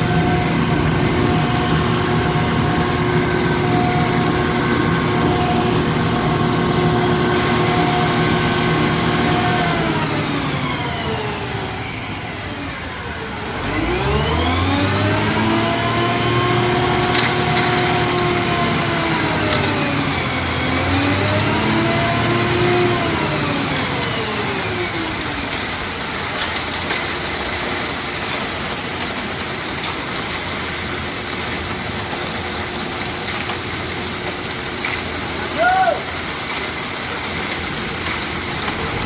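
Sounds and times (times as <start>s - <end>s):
truck engine revving: 0.0s - 26.0s, 37.8s - 39.0s
steady rushing noise: 38.2s - 39.0s.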